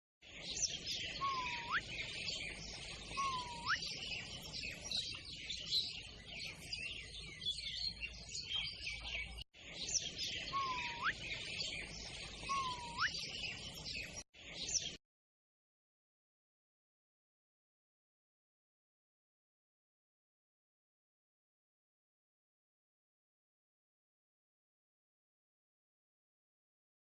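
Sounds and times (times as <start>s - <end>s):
small birds chirping: 0.2s - 15.0s
whistled call sweeping upward: 1.1s - 2.4s, 3.0s - 5.0s, 10.4s - 13.4s.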